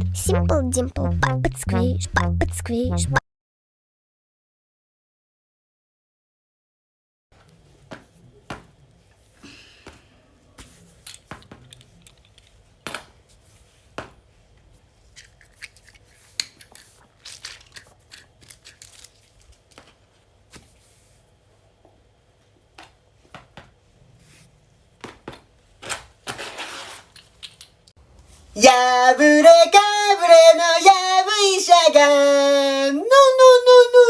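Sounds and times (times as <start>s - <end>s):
small objects crinkling and clicking: 11.0s - 12.6s, 15.1s - 20.1s, 27.1s - 27.9s.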